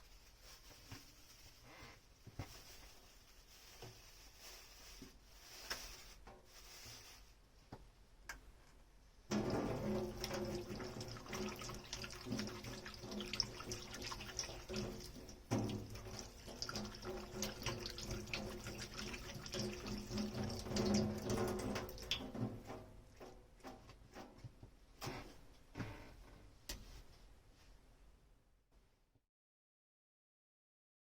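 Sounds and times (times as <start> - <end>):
water running into sink: 9.3 - 23.8.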